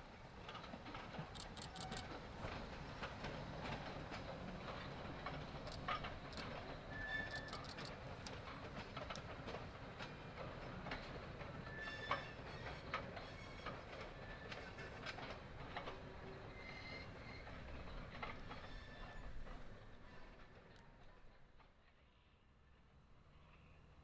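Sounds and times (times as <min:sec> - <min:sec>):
train wheels clicking and clanking: 0:00.1 - 0:20.7
wheel squeals: 0:01.4 - 0:02.1, 0:05.6 - 0:07.9, 0:11.6 - 0:14.6, 0:16.4 - 0:17.7.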